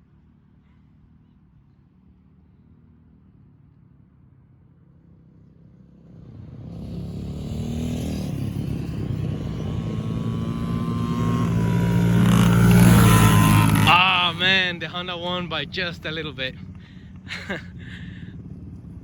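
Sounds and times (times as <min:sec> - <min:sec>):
dirt bike engines racing: 0:05.4 - 0:19.0.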